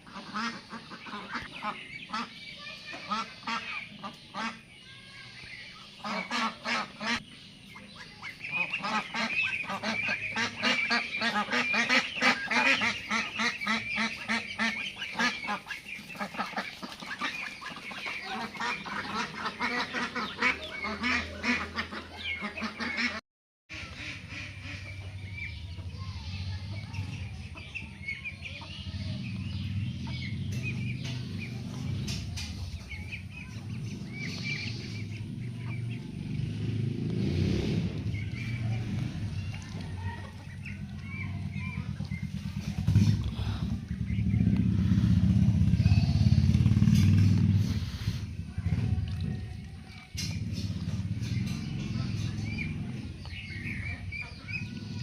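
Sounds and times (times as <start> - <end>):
geese honking: 0.0 - 4.7, 5.4 - 25.6
low steady rumble: 37.8 - 55.0.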